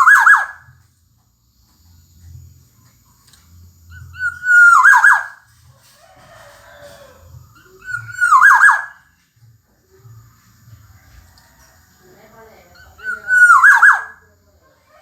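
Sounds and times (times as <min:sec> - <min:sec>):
bird whistled call: 0:00.0 - 0:00.7, 0:04.0 - 0:05.4, 0:07.6 - 0:09.0, 0:12.8 - 0:14.2.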